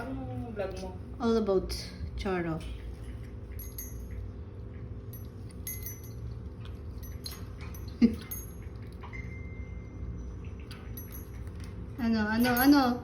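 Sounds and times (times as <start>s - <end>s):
clicks and metallic clinks in cage: 3.5s - 4.3s, 5.1s - 6.3s.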